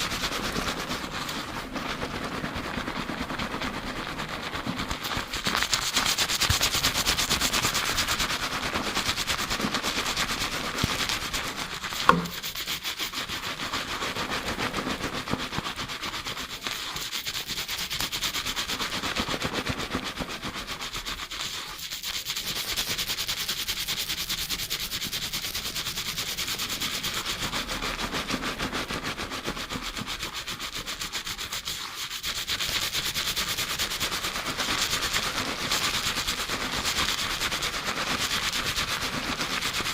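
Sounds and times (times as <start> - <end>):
fingertips scrubbing lathered hair: 0.0 - 39.9
sharp knock: 12.0 - 12.5.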